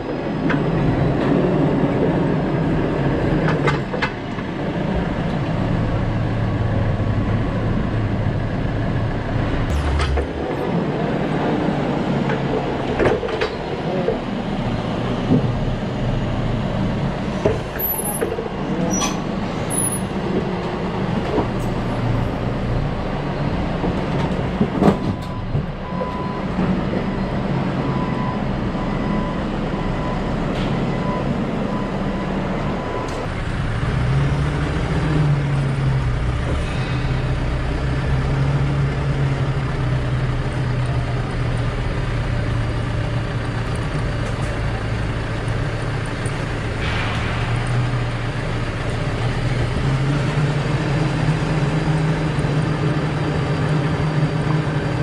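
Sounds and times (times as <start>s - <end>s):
forklift engine running: 0.0s - 55.0s.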